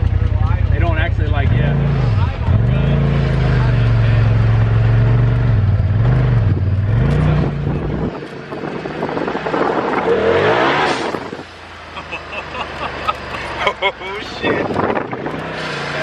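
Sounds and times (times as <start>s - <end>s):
engine revving and accelerating: 0.7s - 16.0s
rushing noise: 6.8s - 12.6s.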